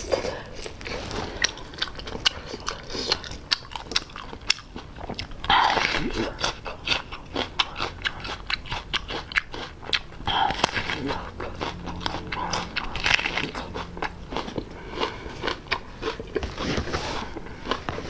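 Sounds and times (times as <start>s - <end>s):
crunchy biting and chewing: 0.0s - 18.0s.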